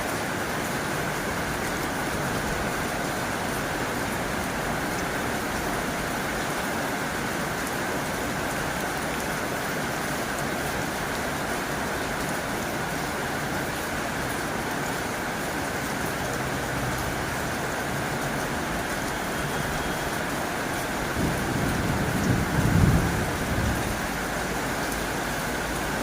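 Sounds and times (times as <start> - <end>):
heavy rain on a tin roof: 0.0 - 26.0.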